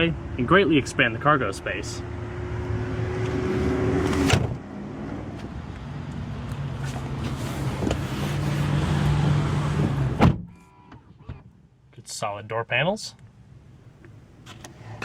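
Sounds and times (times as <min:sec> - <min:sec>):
traffic noise low hum: 0:00.0 - 0:15.0
car door shutting: 0:04.0 - 0:04.6, 0:06.9 - 0:08.7, 0:09.8 - 0:11.5.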